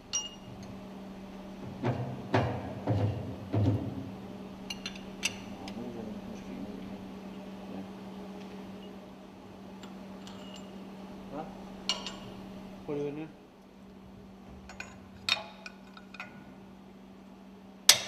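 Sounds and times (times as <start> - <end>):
steady low hum: 0.0 - 18.0
light metallic clinks: 9.8 - 10.8, 11.9 - 12.3.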